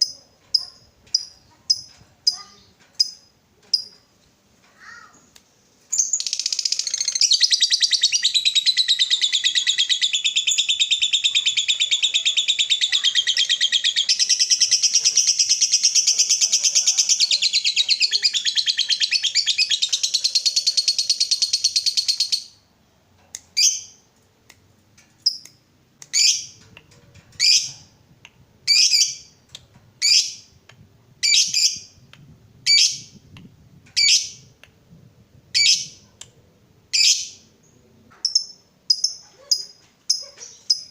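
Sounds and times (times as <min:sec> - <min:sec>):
bird chattering trill: 0:06.0 - 0:22.5.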